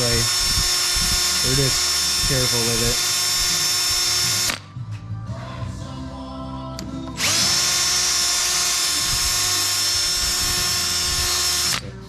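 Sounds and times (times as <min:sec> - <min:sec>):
power drill whining: 0:00.0 - 0:04.6, 0:07.2 - 0:11.8.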